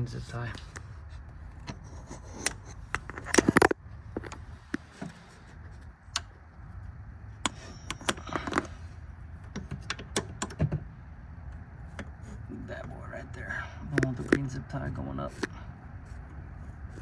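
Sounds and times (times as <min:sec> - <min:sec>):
steady low hum: 0:00.0 - 0:17.0
hands handling engine parts: 0:07.4 - 0:10.9.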